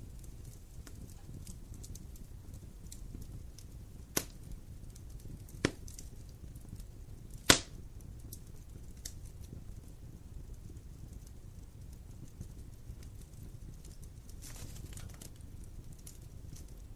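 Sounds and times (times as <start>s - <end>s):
burning logs popping: 0.0s - 16.9s
wood fire rumbling: 0.0s - 16.9s.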